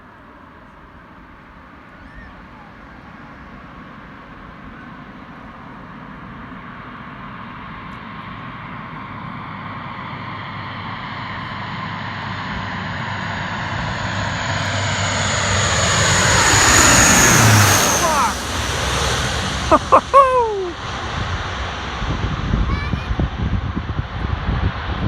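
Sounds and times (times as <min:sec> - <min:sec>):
turboprop aircraft approaching: 0:00.8 - 0:25.0
high engine whine: 0:02.6 - 0:22.4.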